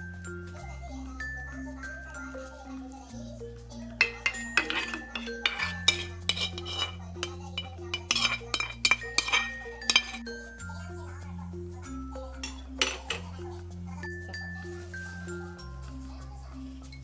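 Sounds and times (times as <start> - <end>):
utensils clinking against cookware: 4.0 - 10.3, 12.3 - 13.4.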